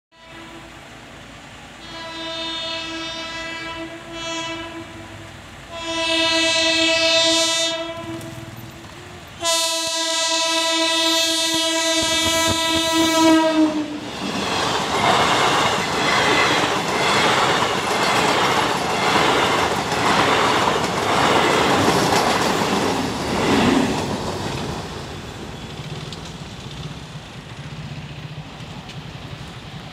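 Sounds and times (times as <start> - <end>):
train horn blasts: 0.1 - 0.8, 1.8 - 14.1
train wheels clickety-clack: 7.8 - 9.6, 11.4 - 29.9.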